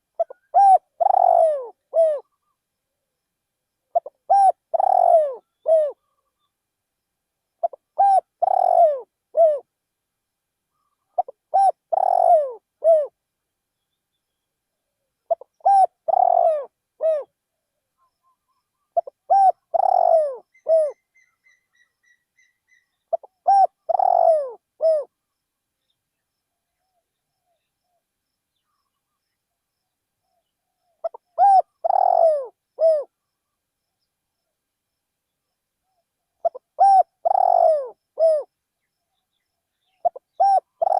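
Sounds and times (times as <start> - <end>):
dove cooing: 0.2 - 2.5, 3.9 - 6.4, 7.6 - 9.7, 11.2 - 13.2, 15.3 - 17.3, 18.9 - 21.0, 23.1 - 25.2, 31.0 - 33.2, 36.4 - 38.5, 40.0 - 40.9
bird peeping: 4.0 - 6.5, 18.2 - 25.1, 31.0 - 33.0, 36.4 - 38.5, 39.8 - 40.9.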